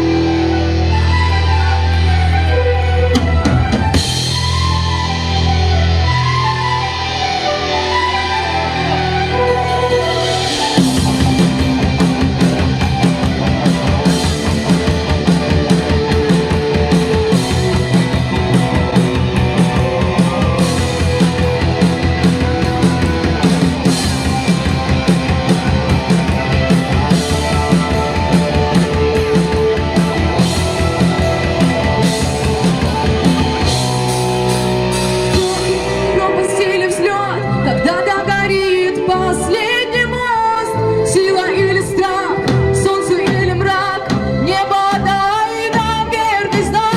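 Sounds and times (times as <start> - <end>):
wavering melody line: 0.0 - 40.7
electric guitar: 0.0 - 46.9
drum kit: 3.1 - 7.2, 9.4 - 36.7.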